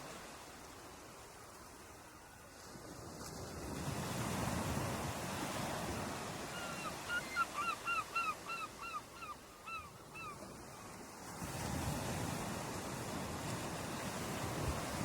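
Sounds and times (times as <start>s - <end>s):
ocean surf washing on beach: 0.0s - 7.4s, 10.4s - 15.0s.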